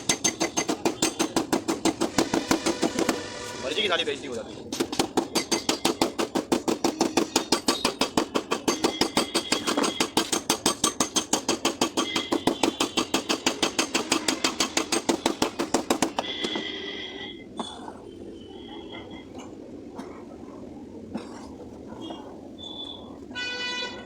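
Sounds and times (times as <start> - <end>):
hammer tapping sheet metal: 0.0 - 3.4, 4.7 - 16.6.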